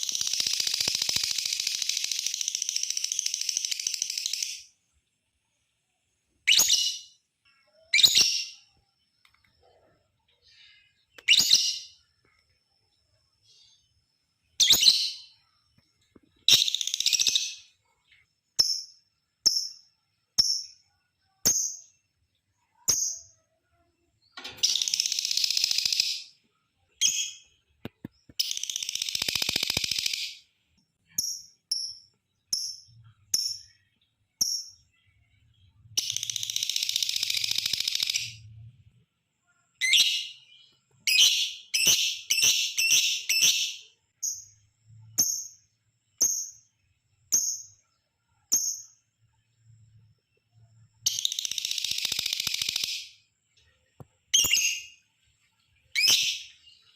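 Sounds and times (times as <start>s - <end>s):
bird rapid shrill chatter: 28.4s - 30.4s.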